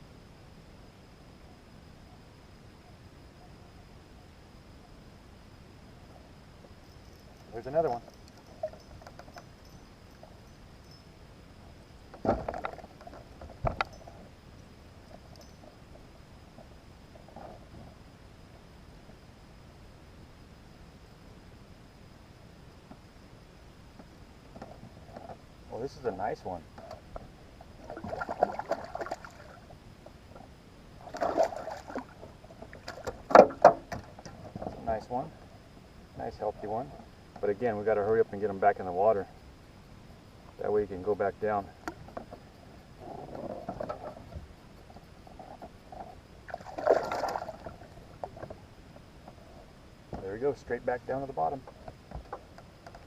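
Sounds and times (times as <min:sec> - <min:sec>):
faint high whine: 0:00.0 - 0:53.0
water splashing and trickling: 0:27.6 - 0:29.8, 0:31.0 - 0:34.3, 0:46.4 - 0:48.6.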